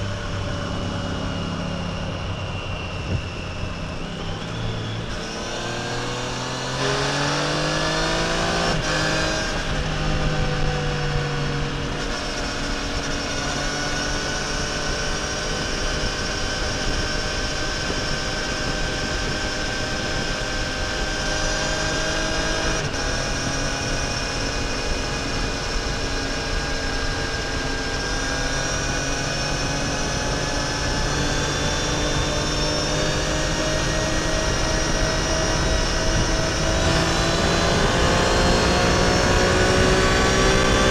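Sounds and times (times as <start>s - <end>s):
motorcycle engine accelerating: 0.0s - 40.9s
wind noise: 0.0s - 40.9s.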